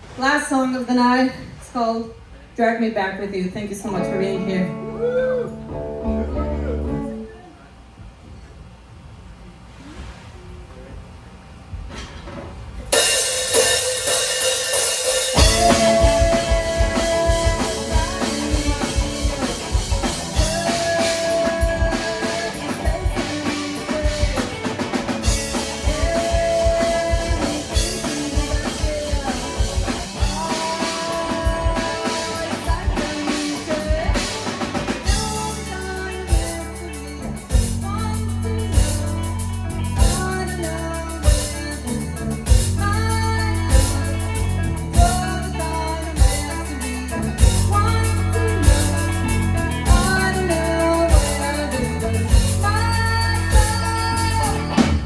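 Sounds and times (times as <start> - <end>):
live rock band playing: 3.8 - 7.3, 12.9 - 55.0
drum kit: 11.7 - 55.0
heavy sustained bass: 15.3 - 33.0.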